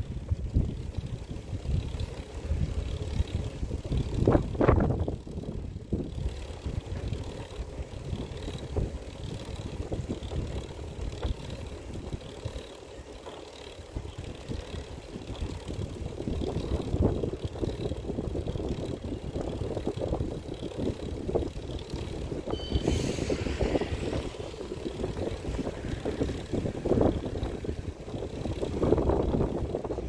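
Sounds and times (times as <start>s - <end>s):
moving vehicle rumbling: 0.0s - 30.0s
wind buffeting microphone: 0.0s - 30.0s
short high squeal: 22.5s - 24.5s
brief hiss: 22.6s - 24.2s.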